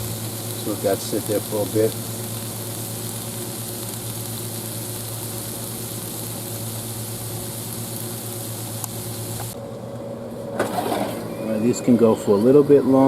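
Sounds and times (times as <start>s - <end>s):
hiss of food cooking: 0.0s - 9.6s
air fryer humming: 0.0s - 13.0s.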